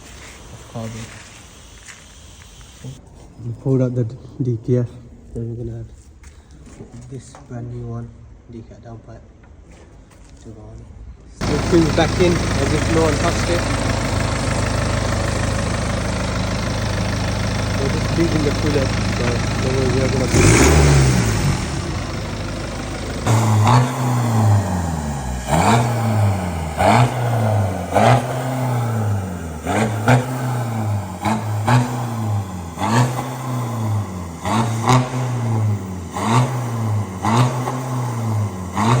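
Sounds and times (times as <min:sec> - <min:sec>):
diesel engine revving: 0:11.4 - 0:39.0.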